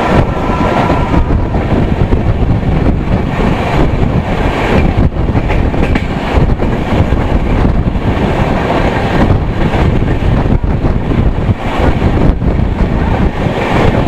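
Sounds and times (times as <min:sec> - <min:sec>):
train wheels rumbling on rail: 0:00.0 - 0:14.0
wind buffeting microphone: 0:00.0 - 0:14.0.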